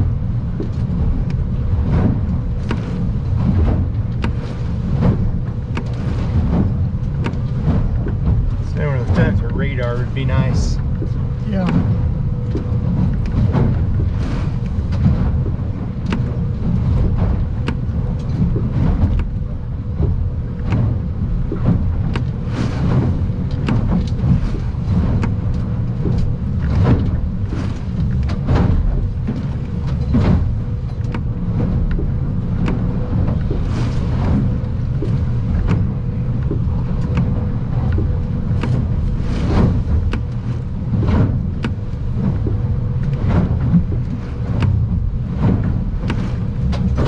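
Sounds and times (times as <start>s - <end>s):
boat engine and hull rumble: 0.0s - 47.0s
waves slapping the hull: 0.0s - 47.0s.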